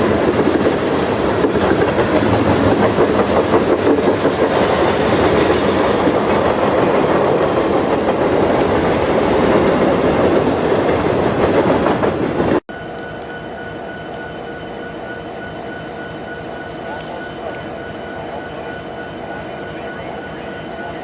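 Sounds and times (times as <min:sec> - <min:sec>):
train wheels clacking over rails: 0:00.0 - 0:12.6
freight train cars rolling past: 0:00.0 - 0:21.0.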